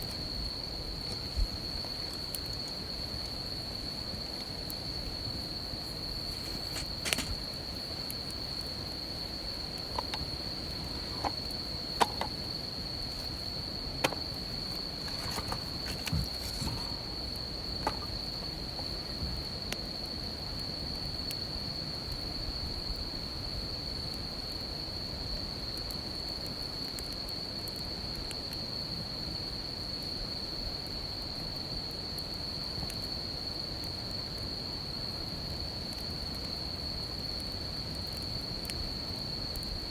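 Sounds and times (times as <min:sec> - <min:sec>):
campfire crackling and popping: 0:00.0 - 0:22.2
insects trilling: 0:00.0 - 0:39.9.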